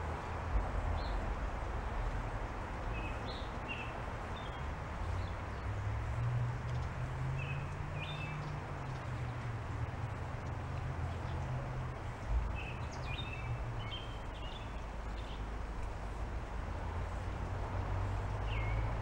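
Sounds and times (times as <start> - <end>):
small birds chirping: 3.0 - 5.7, 6.7 - 15.5, 18.3 - 19.0.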